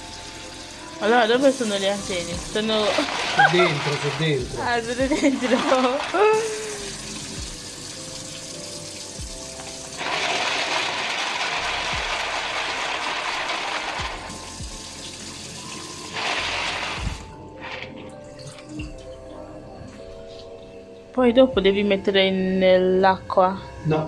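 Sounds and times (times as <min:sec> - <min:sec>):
tap water running: 0:00.0 - 0:21.1.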